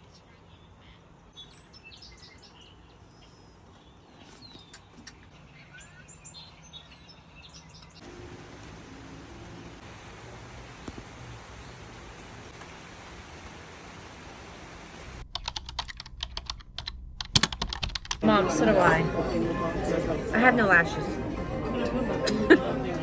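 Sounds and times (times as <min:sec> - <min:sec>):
small birds chirping: 0:00.0 - 0:09.8
steady hiss: 0:08.0 - 0:17.3.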